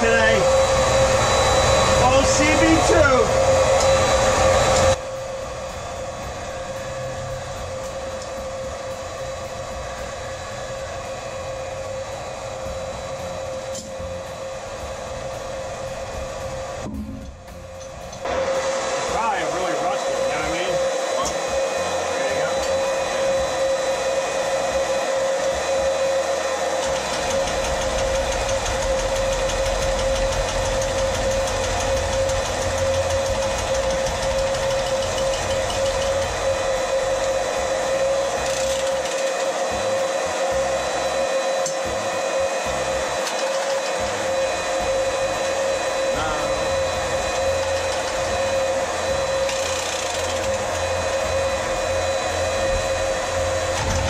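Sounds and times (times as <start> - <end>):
electric pump motor whine: 0.0 - 54.0.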